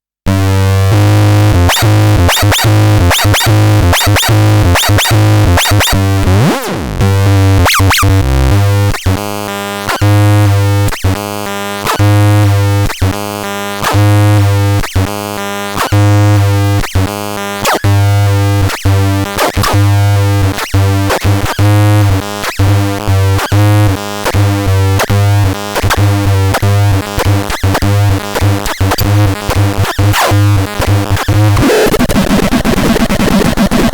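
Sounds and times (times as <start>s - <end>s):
low bass tone: 0.3s - 8.8s
synthesizer notes: 0.4s - 8.8s, 20.2s - 33.9s
synth pitch sweep: 1.3s - 8.2s.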